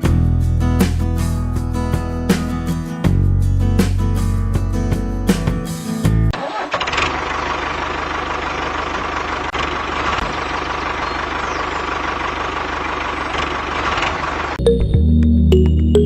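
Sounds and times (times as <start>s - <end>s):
music: 0.0s - 6.3s, 14.6s - 16.0s.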